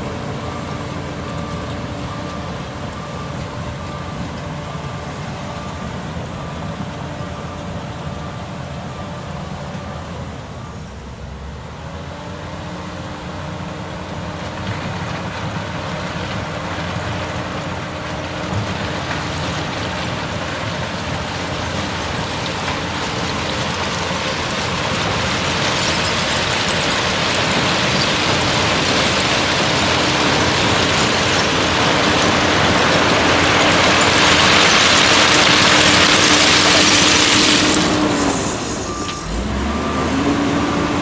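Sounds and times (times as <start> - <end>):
heavy diesel engine running: 0.0 - 41.0.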